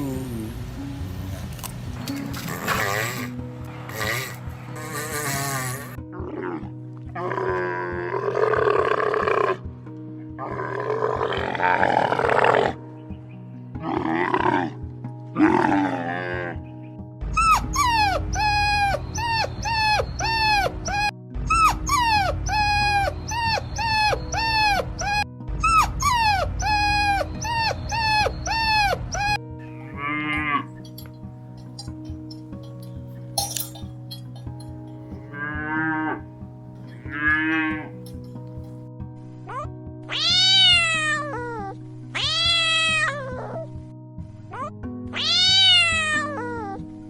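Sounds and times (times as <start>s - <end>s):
animal growling calls: 10.4s - 12.8s, 13.8s - 14.8s, 15.4s - 16.6s
music bed: 17.2s - 39.6s
repeated pitched animal calls: 17.4s - 38.4s.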